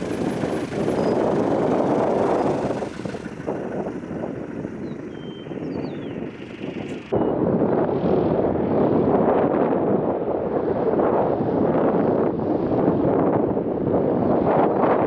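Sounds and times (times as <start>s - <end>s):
aircraft engine rushing: 0.0s - 7.1s.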